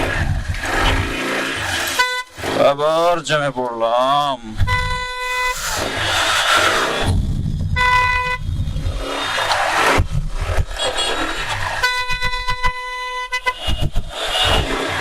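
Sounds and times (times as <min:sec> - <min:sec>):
wind noise: 0:00.0 - 0:02.7, 0:04.4 - 0:15.0
vehicle horns honking: 0:01.9 - 0:02.6, 0:04.6 - 0:05.8, 0:07.7 - 0:08.5, 0:10.8 - 0:15.0
engine rumble: 0:04.4 - 0:12.5.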